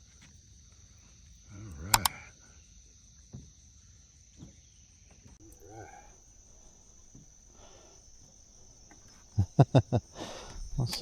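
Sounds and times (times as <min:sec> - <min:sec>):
faint voice: 0:05.4 - 0:06.2
insect chirring: 0:05.4 - 0:11.0.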